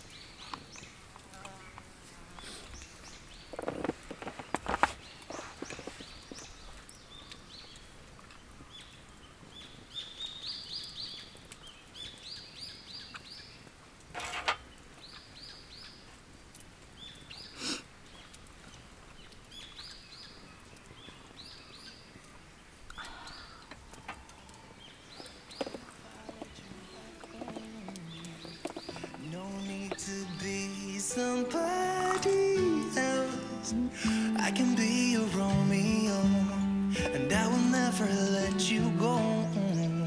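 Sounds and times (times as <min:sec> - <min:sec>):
songbird chirping: 0:00.0 - 0:13.8, 0:14.5 - 0:40.0
sharp cracks: 0:22.2 - 0:40.0
music: 0:29.1 - 0:40.0.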